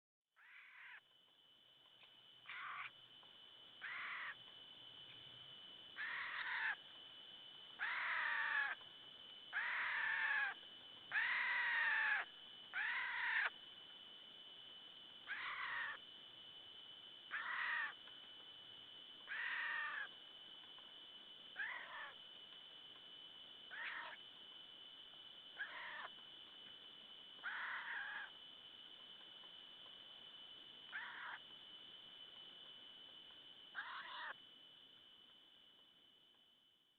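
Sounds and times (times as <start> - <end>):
animal mewing call: 0.4 - 1.0, 2.5 - 2.9, 3.8 - 4.4, 6.0 - 6.8, 7.8 - 8.8, 9.5 - 13.5, 15.3 - 16.0, 17.3 - 18.0, 19.3 - 20.1, 21.6 - 22.2, 23.7 - 24.2, 25.6 - 26.1, 27.4 - 28.3, 30.9 - 31.4, 33.7 - 34.4
steady high-pitched tone: 0.4 - 36.9.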